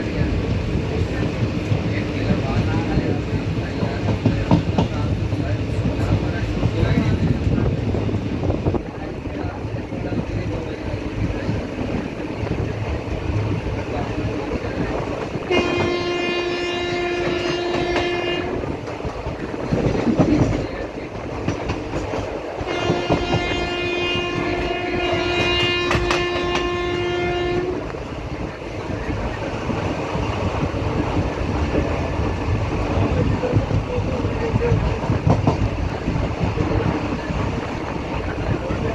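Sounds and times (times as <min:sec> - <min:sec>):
train running with wheel clatter: 0:00.0 - 0:38.9
locomotive horn blasts: 0:15.4 - 0:18.6, 0:22.6 - 0:27.8.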